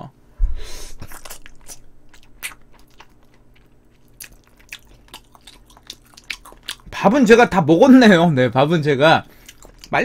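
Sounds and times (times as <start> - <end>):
person chewing food: 0.9 - 7.0, 9.3 - 10.0.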